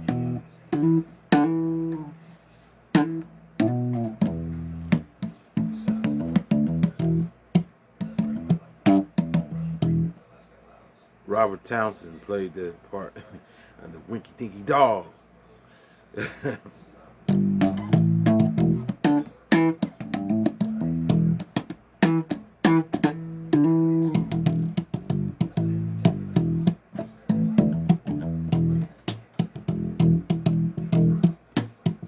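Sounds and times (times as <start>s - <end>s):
electric bass guitar solo: 0.0s - 2.2s, 2.9s - 7.3s, 8.0s - 10.1s, 17.3s - 32.0s.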